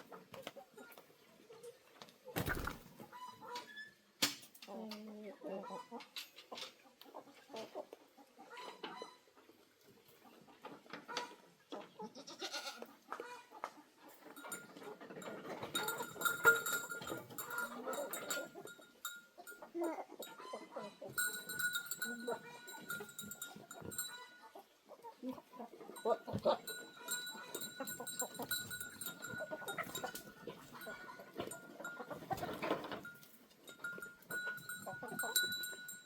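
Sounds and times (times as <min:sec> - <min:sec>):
farm animal calls: 0:04.7 - 0:06.2, 0:10.6 - 0:36.0.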